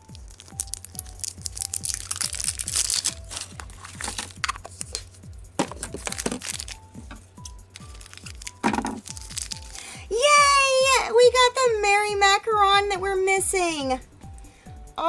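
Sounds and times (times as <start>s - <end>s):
packaging crackling and tearing: 0.0s - 9.9s
background music: 0.0s - 15.0s.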